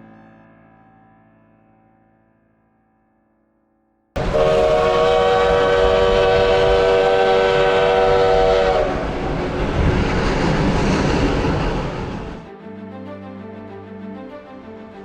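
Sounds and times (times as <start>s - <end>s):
steam locomotive whistle: 4.2s - 9.6s
moving train rumble: 4.2s - 12.5s.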